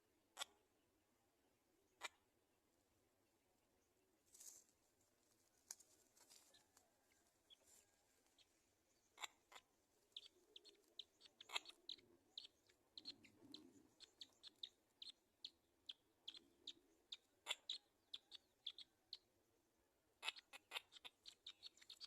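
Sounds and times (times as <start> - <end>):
high-pitched bird chirps: 9.1 - 19.2, 20.2 - 22.0.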